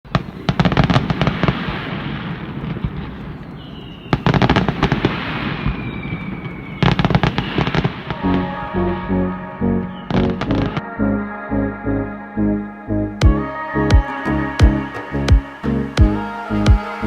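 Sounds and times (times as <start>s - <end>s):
fireworks rumbling: 0.0s - 10.8s
fireworks crackling bangs: 0.1s - 8.7s
falling whistle: 3.5s - 11.1s, 13.3s - 17.0s.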